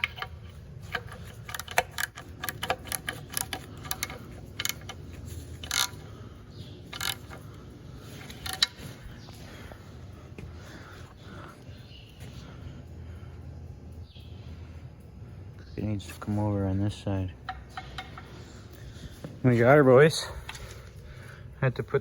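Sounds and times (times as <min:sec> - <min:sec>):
hand tools clicking on metal: 0:00.0 - 0:09.4, 0:17.4 - 0:18.8
steady low hum: 0:00.0 - 0:22.0.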